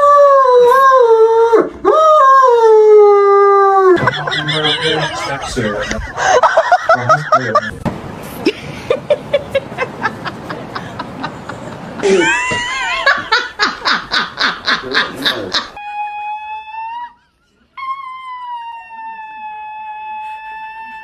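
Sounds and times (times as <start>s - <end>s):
person laughing hard: 4.0s - 7.8s, 8.4s - 15.8s.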